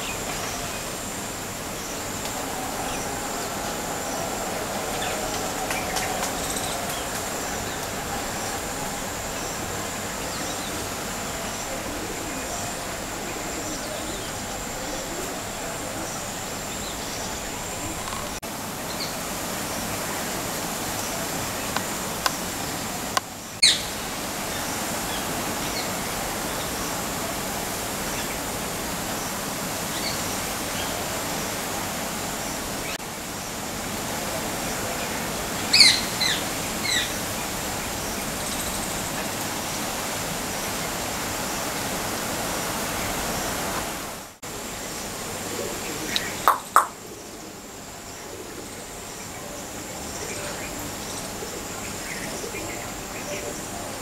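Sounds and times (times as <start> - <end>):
birds chirping: 0.0 - 20.0, 45.9 - 47.1
steady outdoor hiss: 0.0 - 54.0.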